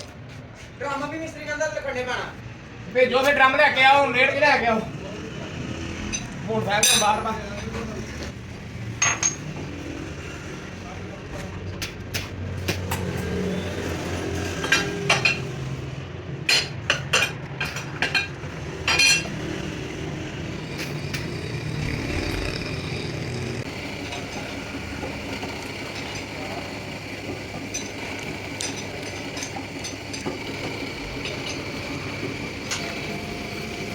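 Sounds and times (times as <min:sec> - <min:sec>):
metal tools striking metal: 0:06.1 - 0:07.3
machine humming: 0:21.0 - 0:27.2.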